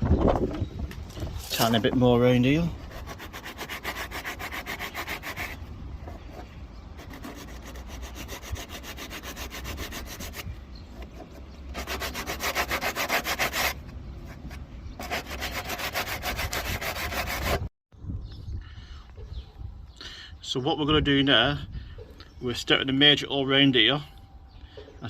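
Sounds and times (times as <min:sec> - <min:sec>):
hand sanding car bodywork: 0:02.6 - 0:05.6, 0:07.0 - 0:17.7.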